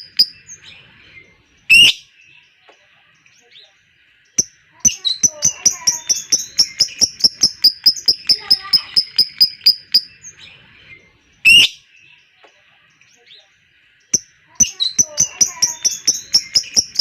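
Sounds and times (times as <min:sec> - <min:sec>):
lovebird chattering trill: 0:00.0 - 0:00.6, 0:04.4 - 0:10.4, 0:14.1 - 0:17.0
loud shrill bird call: 0:04.9 - 0:10.2, 0:14.6 - 0:17.0.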